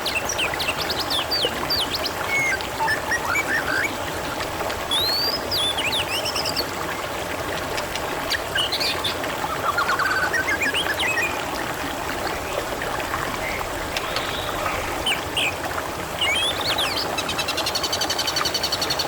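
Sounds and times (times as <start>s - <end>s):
water trickling and babbling: 0.0s - 19.0s
birds chirping and whistling: 1.4s - 3.9s, 4.9s - 6.6s, 8.5s - 11.3s, 16.2s - 17.1s.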